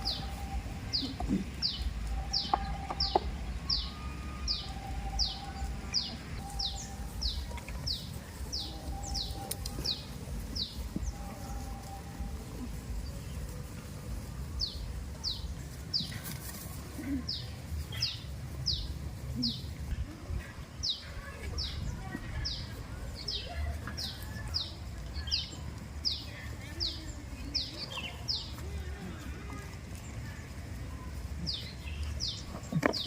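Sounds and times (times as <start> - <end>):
small bird calling: 0.0 - 13.4.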